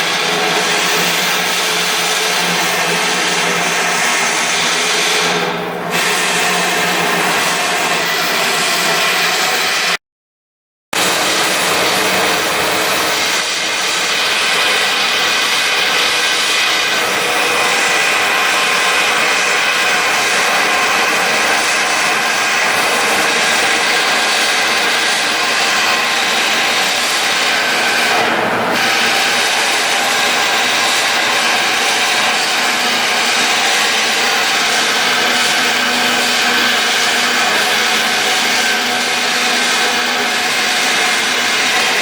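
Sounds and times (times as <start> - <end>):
whirring machinery with whining tones: 11.0 - 42.0.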